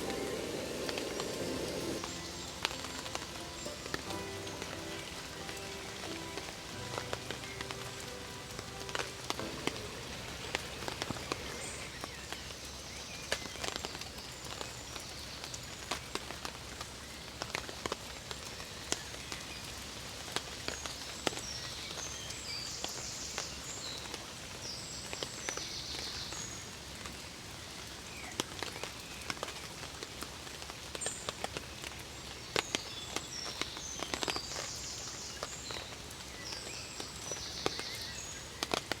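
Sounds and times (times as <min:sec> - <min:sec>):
sharp taps and drips: 0:00.0 - 0:21.4, 0:35.4 - 0:39.0
light rain pattering: 0:00.0 - 0:39.0.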